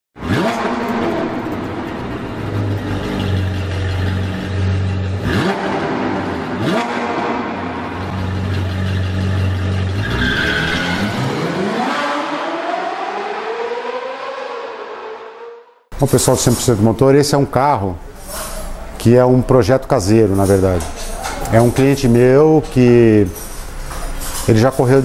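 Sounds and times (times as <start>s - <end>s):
sports car engine revving: 0.2s - 15.4s
long rising sweep: 10.7s - 15.9s.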